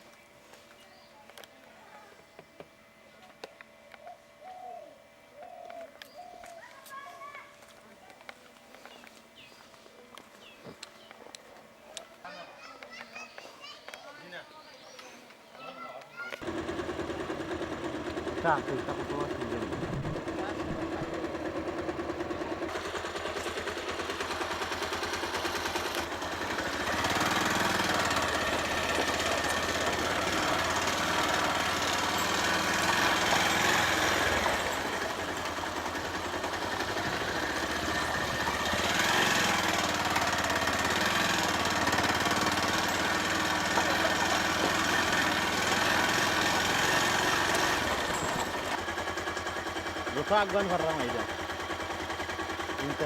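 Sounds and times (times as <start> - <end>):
motorcycle engine running: 16.4 - 53.0.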